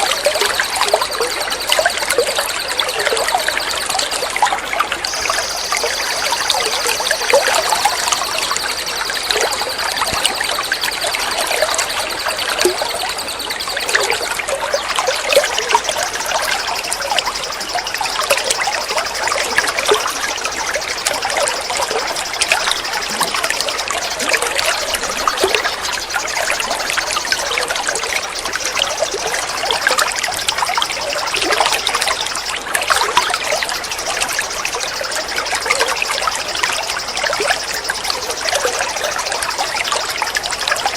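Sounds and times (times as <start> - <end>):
high thin tone: 5.1 - 12.9.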